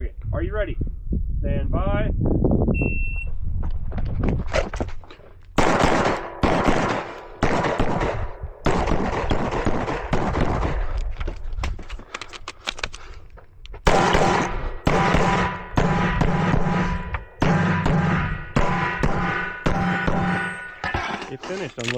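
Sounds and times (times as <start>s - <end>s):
pistol shots with echo: 5.6s - 10.9s, 13.9s - 21.1s.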